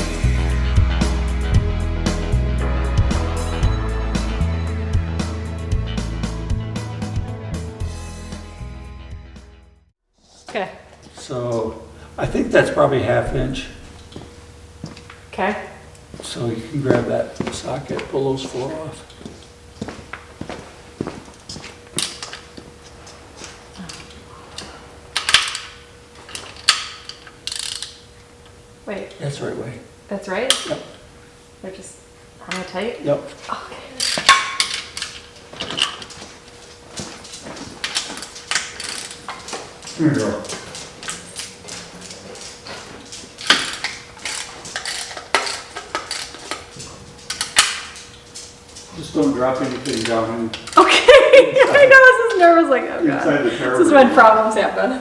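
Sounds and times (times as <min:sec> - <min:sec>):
faint steady hum: 0:10.5 - 0:55.0
metal tools clinking: 0:34.0 - 0:50.9.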